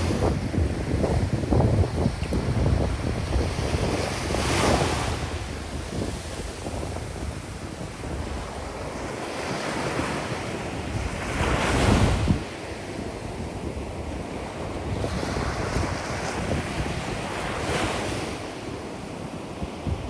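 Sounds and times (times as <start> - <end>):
waves breaking on sandy beach: 0.0 - 20.0
wind buffeting microphone: 0.0 - 20.0.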